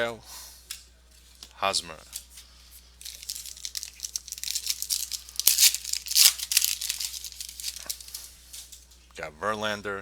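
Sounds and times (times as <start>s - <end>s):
foil wrapper tearing and crinkling: 3.0s - 8.3s.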